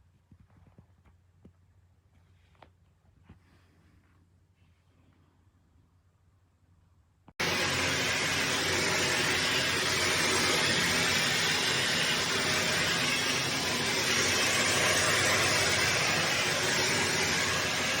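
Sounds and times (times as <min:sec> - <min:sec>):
vacuum cleaner running: 0:07.4 - 0:18.0.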